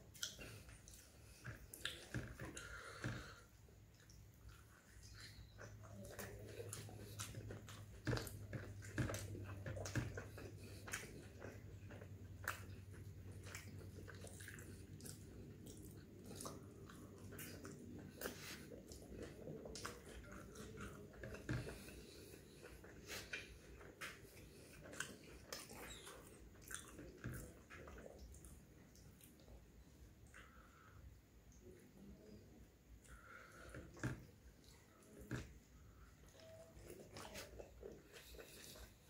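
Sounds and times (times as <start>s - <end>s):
man chewing: 0.0s - 30.9s, 33.0s - 39.0s.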